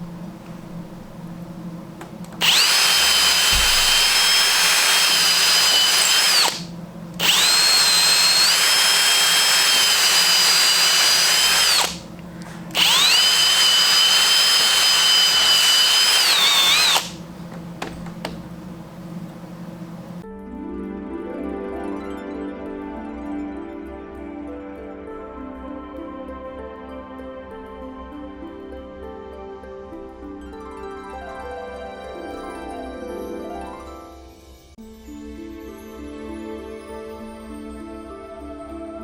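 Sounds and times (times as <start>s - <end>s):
power drill driving screws into wood: 2.4s - 17.2s.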